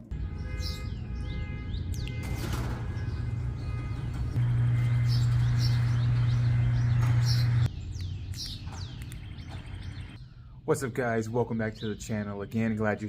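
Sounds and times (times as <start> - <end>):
birds chirping: 0.0 - 13.0
low hum: 1.7 - 10.6.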